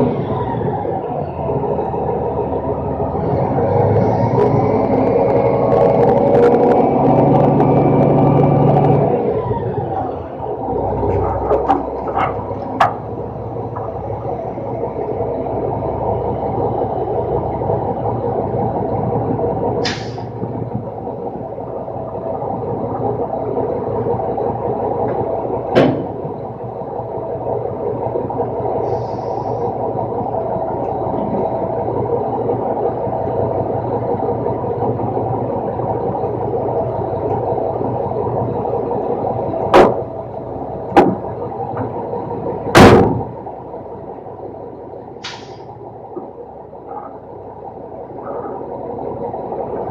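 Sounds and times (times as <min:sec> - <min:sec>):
garbage truck droning hum: 0:00.0 - 0:49.9
sharp knocks: 0:41.0 - 0:41.2.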